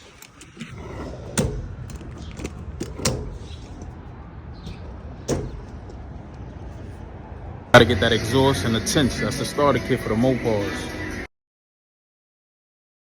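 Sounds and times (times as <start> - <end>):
sharp knocks and clicks: 0.0 - 6.6
low steady rumble: 0.0 - 9.5.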